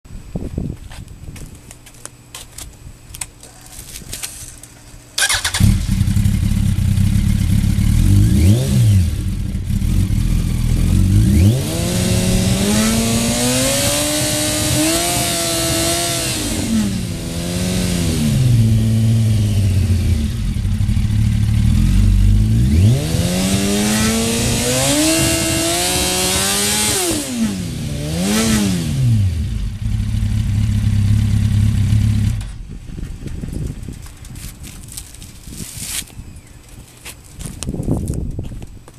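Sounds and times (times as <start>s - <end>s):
motorcycle engine idling and revving: 5.2s - 36.0s.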